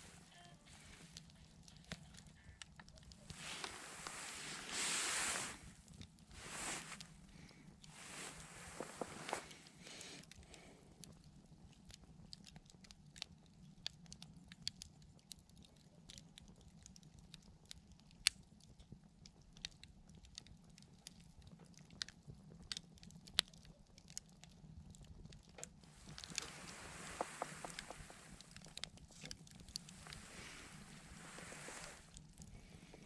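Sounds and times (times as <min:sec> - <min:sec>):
soft hiss: 0:00.0 - 0:11.4, 0:25.5 - 0:33.0
campfire crackling: 0:00.0 - 0:33.0.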